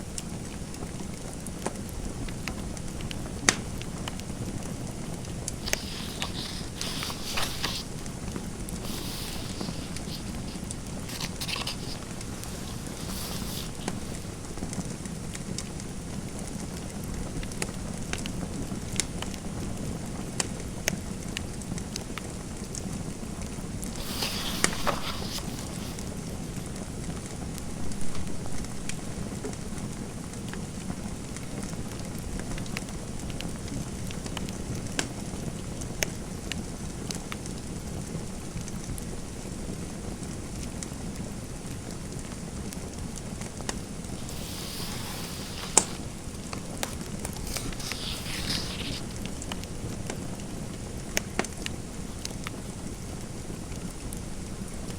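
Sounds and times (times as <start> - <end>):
pen scratching on paper: 5.6 - 8.0, 8.8 - 14.3, 24.0 - 26.0, 44.2 - 46.2, 46.8 - 49.1
fireplace fire crackling: 44.2 - 48.8.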